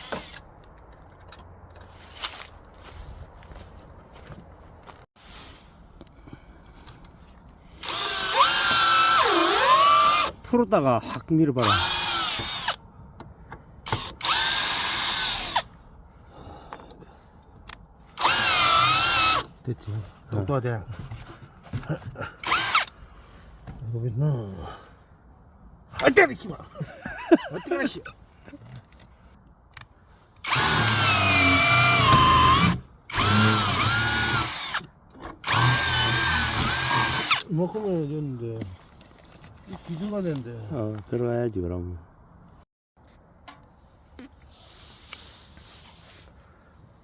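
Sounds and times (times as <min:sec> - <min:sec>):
power drill driving a screw: 0:07.8 - 0:10.4, 0:11.6 - 0:12.8, 0:13.9 - 0:15.7, 0:18.2 - 0:19.5, 0:22.4 - 0:22.9, 0:30.4 - 0:37.5.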